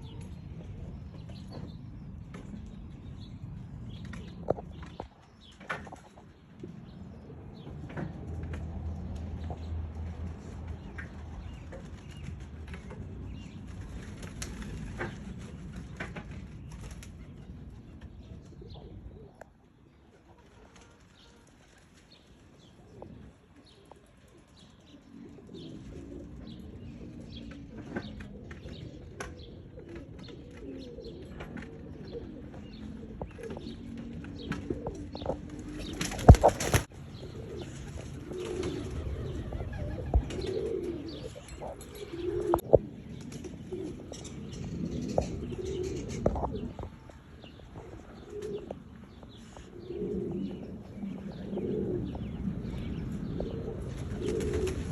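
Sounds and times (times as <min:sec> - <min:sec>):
pigeons cooing: 0:00.0 - 0:54.9
wings flapping: 0:11.8 - 0:17.3, 0:20.3 - 0:22.6, 0:34.2 - 0:36.9, 0:37.5 - 0:41.8, 0:53.8 - 0:54.9.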